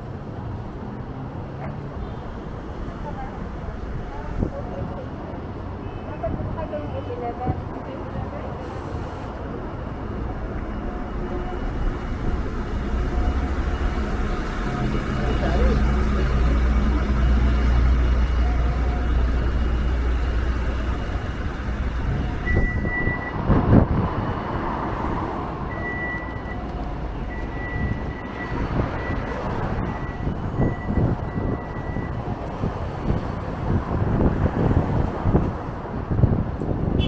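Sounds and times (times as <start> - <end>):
heavy vehicle engine drone: 0.0 - 37.0
wind buffeting microphone: 3.5 - 37.0
high-pitched reversing beep: 10.0 - 23.4, 27.2 - 32.2.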